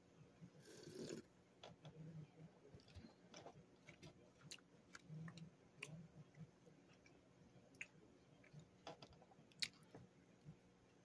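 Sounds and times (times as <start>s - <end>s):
faint chewing: 2.7s - 10.6s.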